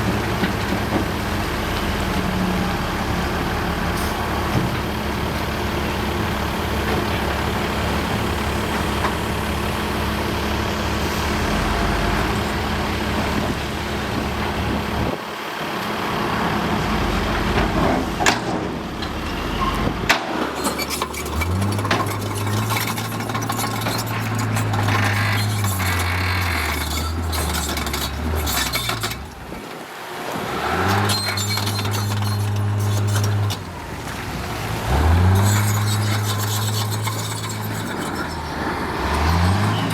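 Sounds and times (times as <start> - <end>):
diesel machinery engine running: 0.0 - 39.9.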